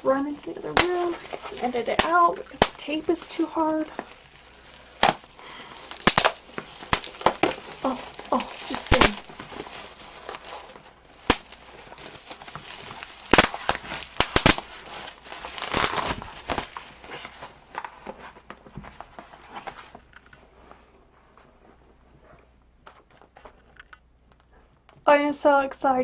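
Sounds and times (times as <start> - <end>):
parcel tape tearing: 0.3 - 17.4
sharp snaps: 11.2 - 11.6, 13.3 - 14.7.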